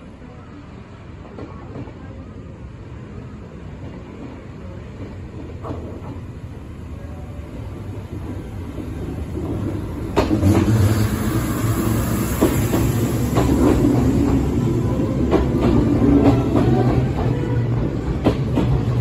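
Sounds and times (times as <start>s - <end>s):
electric train pulling in: 5.8s - 19.0s.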